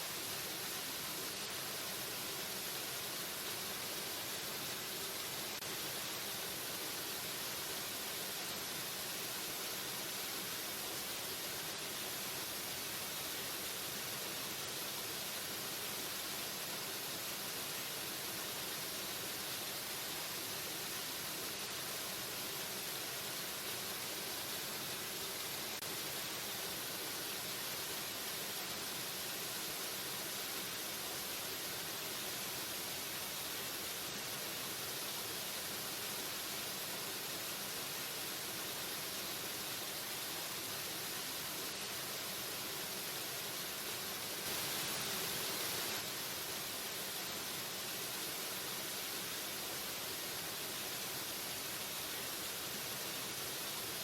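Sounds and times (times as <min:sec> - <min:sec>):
waterfall rushing: 0:44.2 - 0:47.8.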